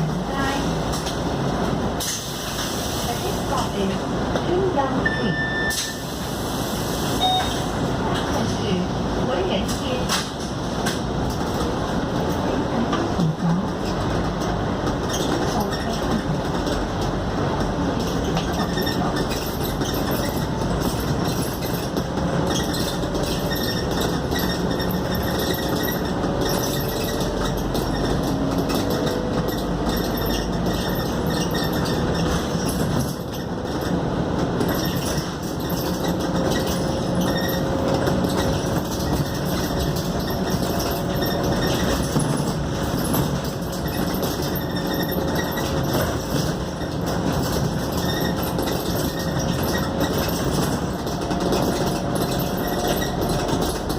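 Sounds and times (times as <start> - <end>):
bus engine and road noise: 0.0 - 53.9.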